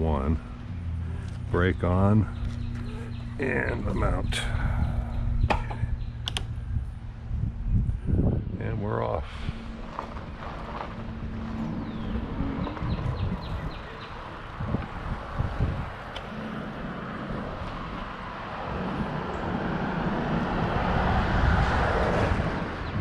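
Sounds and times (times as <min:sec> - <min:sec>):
tyres rumbling on pavement: 0:00.0 - 0:07.4, 0:08.2 - 0:23.0
wind noise on microphone: 0:00.9 - 0:23.0.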